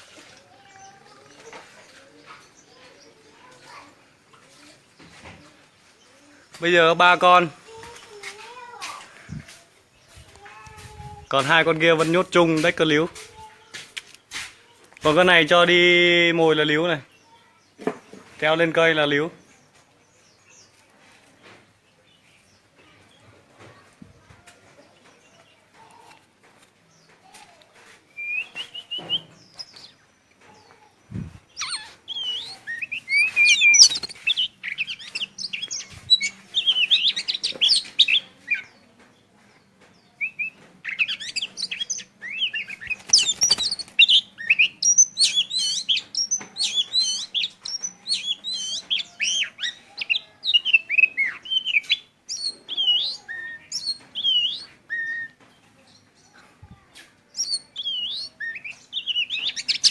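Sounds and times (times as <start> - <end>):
songbird warbling: 30.6 - 38.8, 40.1 - 55.4, 57.3 - 59.9.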